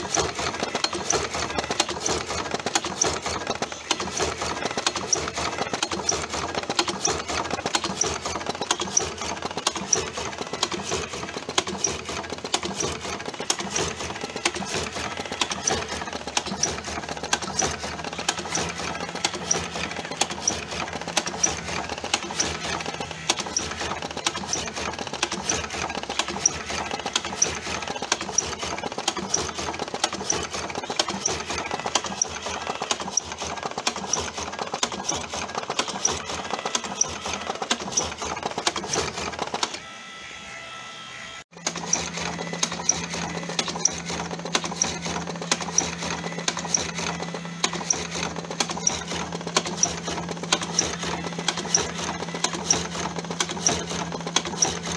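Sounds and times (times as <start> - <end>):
machine mechanical clatter: 0.0 - 39.8, 41.5 - 54.9.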